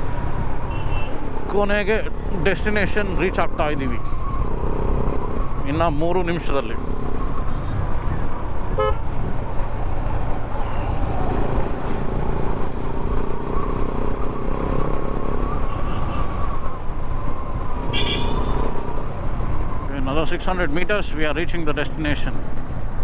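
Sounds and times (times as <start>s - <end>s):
wind and road noise: 0.0s - 23.0s
horn beeping: 8.7s - 9.0s, 17.8s - 18.8s.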